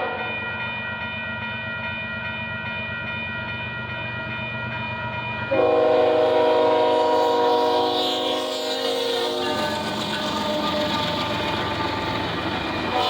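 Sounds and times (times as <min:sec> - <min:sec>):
train rumbling: 0:00.0 - 0:13.0
locomotive horn chord: 0:05.5 - 0:13.0.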